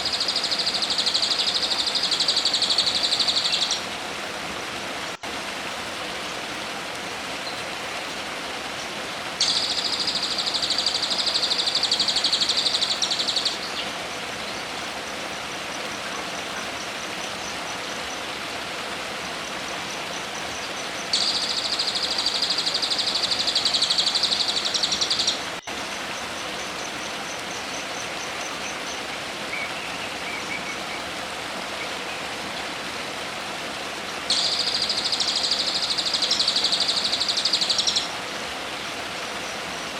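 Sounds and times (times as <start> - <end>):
faint fast ticking bird notes: 0.0 - 3.8, 8.8 - 18.5, 19.4 - 31.1, 34.3 - 39.7
background hiss: 0.0 - 39.9.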